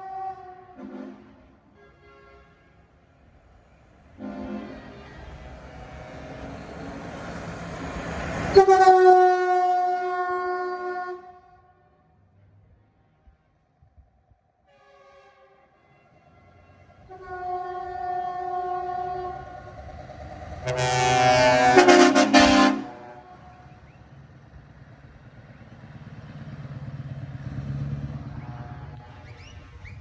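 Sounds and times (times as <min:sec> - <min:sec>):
truck air horn blasts: 0:00.0 - 0:03.0, 0:04.2 - 0:05.5, 0:08.4 - 0:11.8, 0:14.6 - 0:19.6, 0:20.6 - 0:23.7, 0:28.2 - 0:29.3
truck engine rumble: 0:03.1 - 0:10.0, 0:17.8 - 0:30.0.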